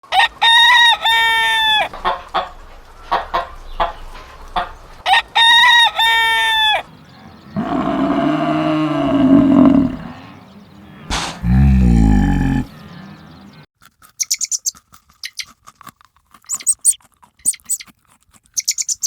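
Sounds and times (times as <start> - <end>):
rooster crowing: 0.1 - 1.9, 5.1 - 6.9, 7.6 - 10.2
chicken clucks: 0.1 - 6.8
deep long animal call: 7.4 - 12.8.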